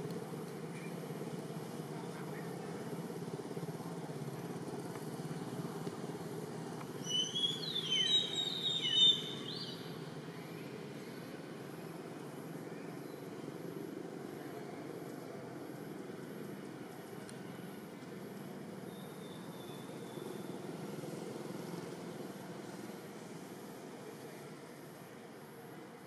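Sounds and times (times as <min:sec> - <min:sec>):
bird chirps and whistles: 0:07.0 - 0:09.8.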